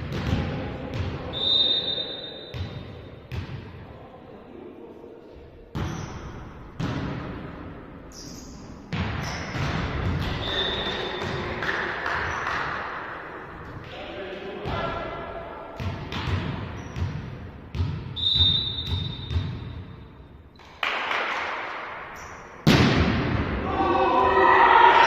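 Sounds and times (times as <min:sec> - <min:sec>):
referee's whistle blast: 0:18.2 - 0:19.4
volleyball thudding: 0:22.6 - 0:23.5.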